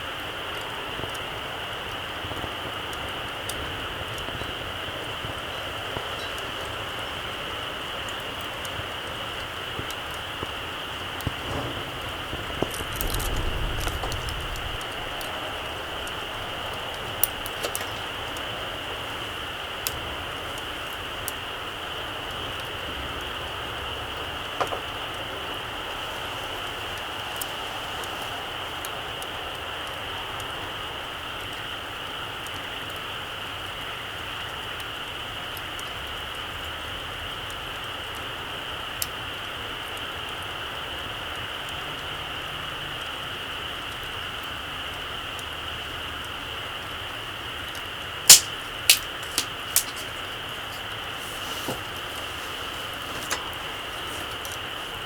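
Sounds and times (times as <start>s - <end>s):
burning wood crackling: 0.0s - 41.7s, 43.0s - 55.0s
campfire hissing: 0.0s - 55.0s
fire sharp pop: 11.2s - 15.3s, 48.3s - 50.2s
low rumble: 11.4s - 17.6s.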